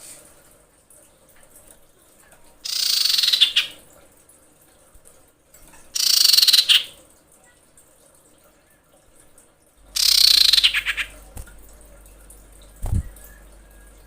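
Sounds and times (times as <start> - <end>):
bird trilled calls: 2.6 - 3.8, 6.0 - 7.0, 9.9 - 11.2.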